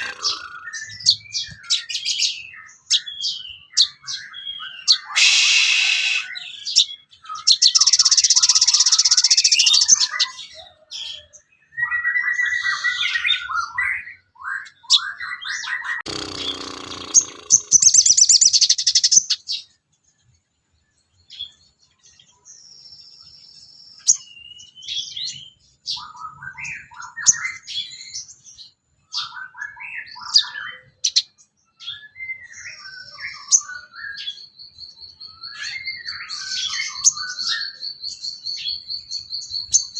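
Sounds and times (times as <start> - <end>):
harsh rasping bird calls: 0.0 - 4.0, 4.8 - 7.0, 16.0 - 19.5
bird chirps trills and whistles: 0.0 - 19.8, 21.2 - 39.9.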